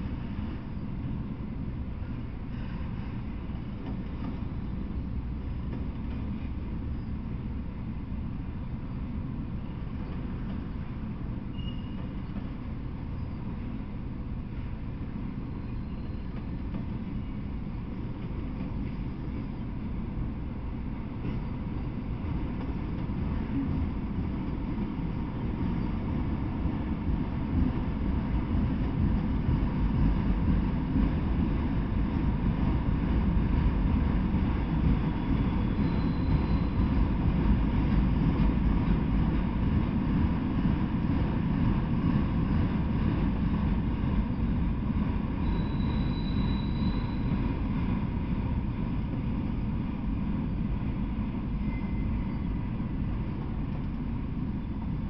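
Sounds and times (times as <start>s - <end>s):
steel wheels rumbling on rails: 0.0s - 55.0s
faint high whines: 51.4s - 53.5s.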